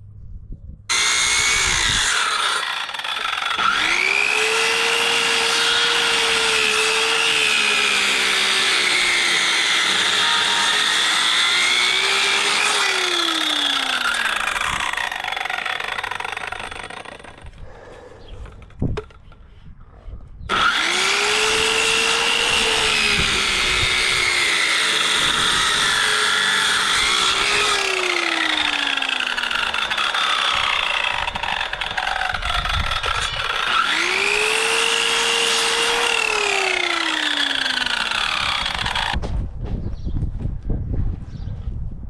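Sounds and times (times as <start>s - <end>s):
power tool motor cutting wood: 0.9s - 17.5s, 20.5s - 39.2s.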